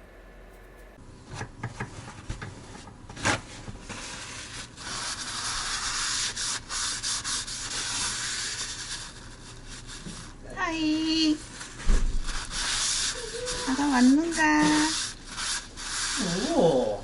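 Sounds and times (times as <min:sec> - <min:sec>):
rasping rubbing noise: 0:11.6 - 0:17.0.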